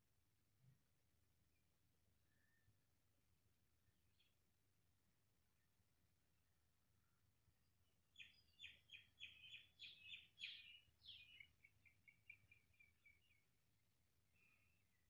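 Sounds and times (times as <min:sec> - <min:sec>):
songbird singing: 0:08.1 - 0:13.6.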